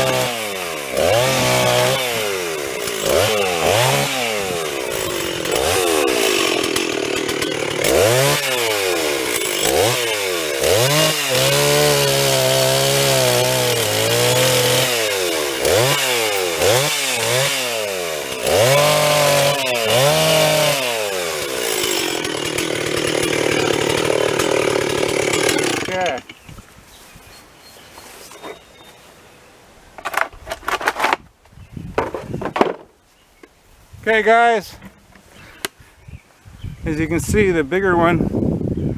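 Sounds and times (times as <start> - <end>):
chainsaw revving while cutting: 0.0 - 26.2.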